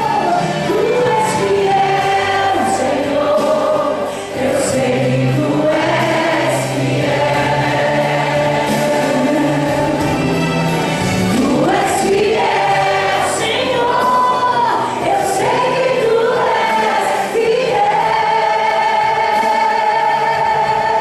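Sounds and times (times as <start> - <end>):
choir singing in harmony: 0.0 - 21.0.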